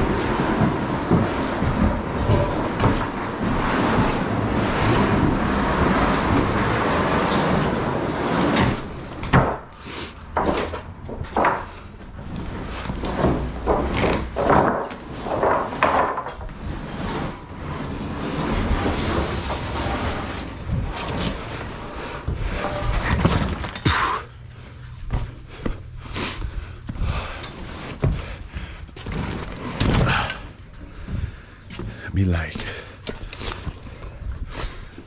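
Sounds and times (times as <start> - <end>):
demolition debris knocking and clattering: 0.0 - 25.4
steady rumbling noise: 0.0 - 35.0.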